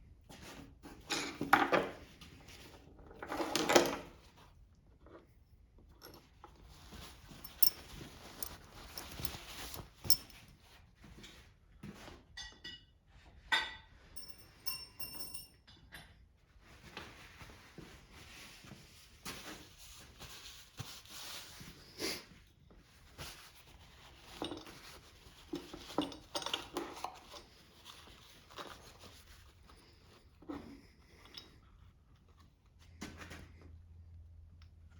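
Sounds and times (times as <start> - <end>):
metal tools clinking and scraping: 7.0 - 10.4, 14.2 - 16.0.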